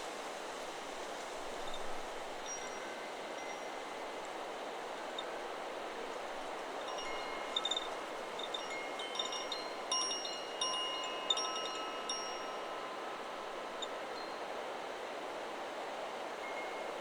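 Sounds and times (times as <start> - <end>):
wind hiss: 0.0 - 17.0
wind chime ringing: 6.9 - 14.4.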